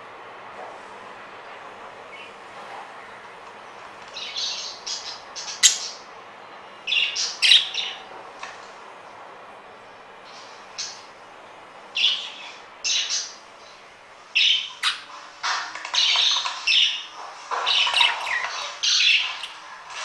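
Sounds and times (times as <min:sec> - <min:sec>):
budgerigars squawking: 0:04.2 - 0:06.1, 0:06.9 - 0:08.1, 0:12.0 - 0:13.4, 0:14.4 - 0:15.1, 0:15.9 - 0:19.7.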